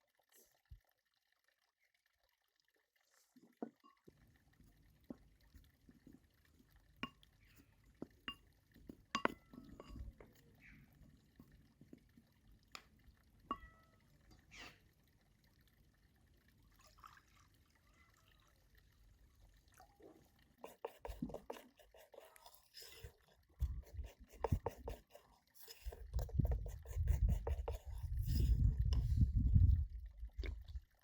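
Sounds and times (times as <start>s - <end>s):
liquid pouring: 0.0s - 31.0s
glass clinking: 9.2s - 10.1s.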